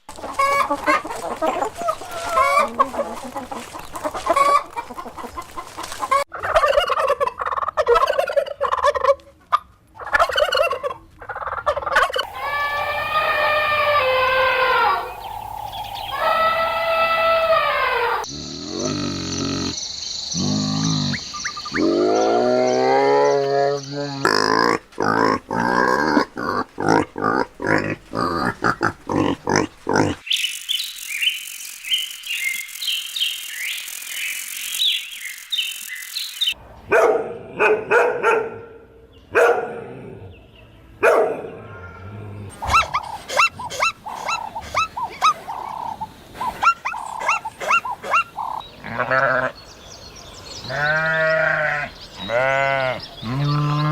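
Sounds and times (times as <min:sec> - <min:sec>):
farm animal calls: 0:00.1 - 0:30.3, 0:41.6 - 0:49.7, 0:50.6 - 0:53.9
high-pitched chirping: 0:12.2 - 0:18.2.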